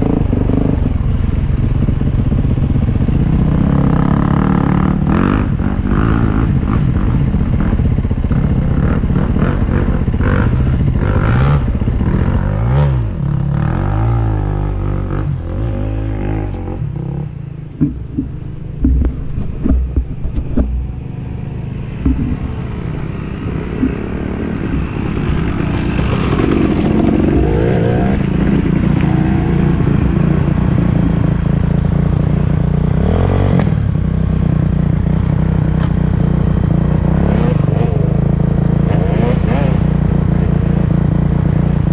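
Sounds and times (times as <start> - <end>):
dirt bike engine revving: 2.9 - 41.8
sharp knocks and clatters: 17.8 - 21.0, 22.0 - 22.8.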